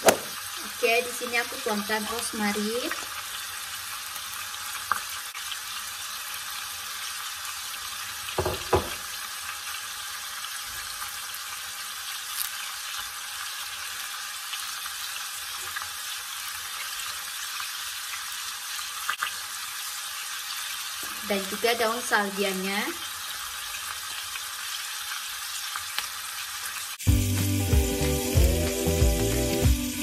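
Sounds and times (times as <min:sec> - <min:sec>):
chicken sizzling in a pan: 0:00.0 - 0:30.0
utensil knocking against pan: 0:08.4 - 0:09.0.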